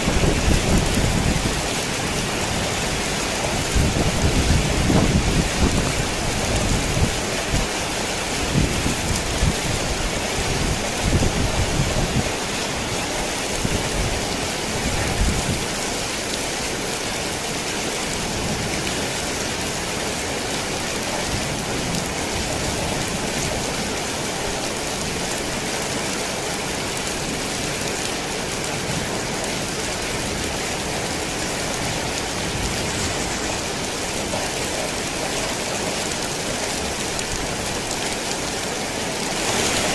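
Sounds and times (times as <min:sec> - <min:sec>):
thunder rumbling: 0:00.0 - 0:07.5
heavy rain on a tin roof: 0:00.0 - 0:39.9.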